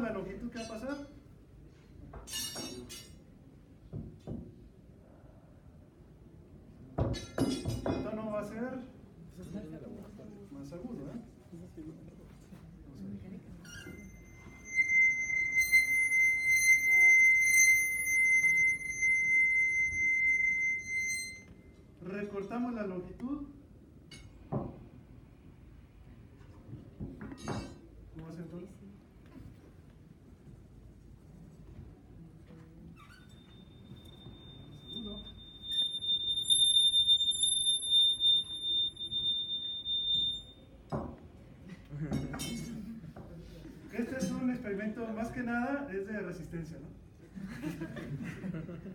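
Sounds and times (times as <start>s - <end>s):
rod singing high-pitched tone: 13.7s - 21.5s, 33.0s - 40.6s
rosined rod singing high tone: 13.9s - 21.5s.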